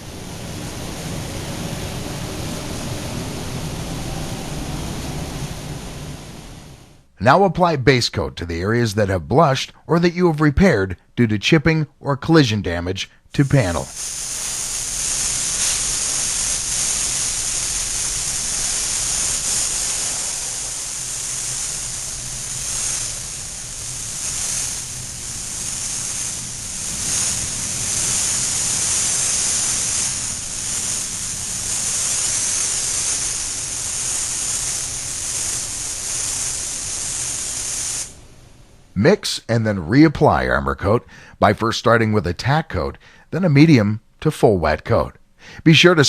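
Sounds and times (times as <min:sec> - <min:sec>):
paint spray gun hissing: 0:13.4 - 0:38.3.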